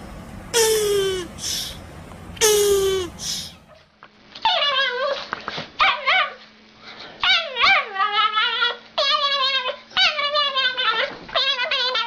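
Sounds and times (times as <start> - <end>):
animal whining calls: 0.6 - 1.8, 2.4 - 3.7.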